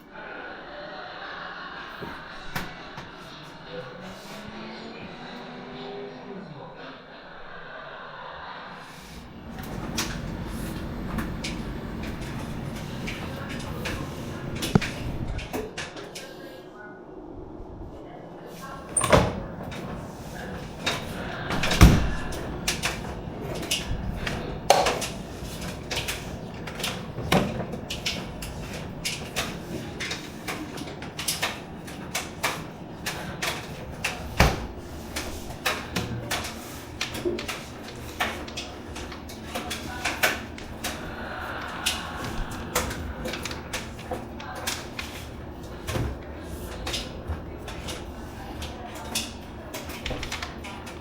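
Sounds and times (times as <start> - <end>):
washing machine running: 0.0 - 16.3, 17.2 - 51.0.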